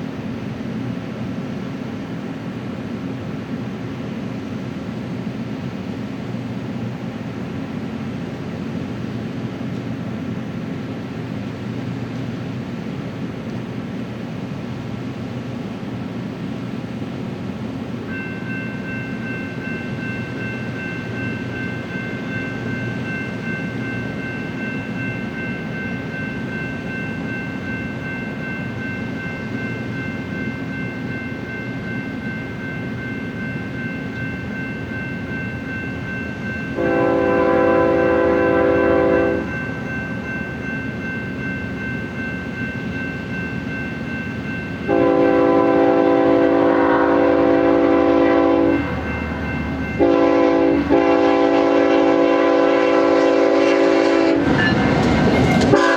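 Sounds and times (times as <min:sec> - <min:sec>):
freight train rumble: 0:00.0 - 0:55.9
train air horn: 0:36.8 - 0:39.5, 0:44.9 - 0:48.9, 0:50.0 - 0:55.9.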